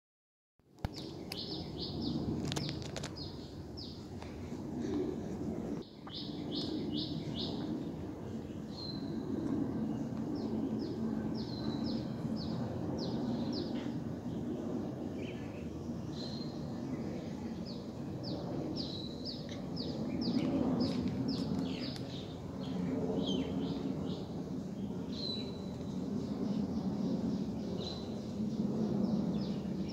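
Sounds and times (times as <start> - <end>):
steady low rumble: 0.7 - 29.9
birds chirping: 5.8 - 9.2.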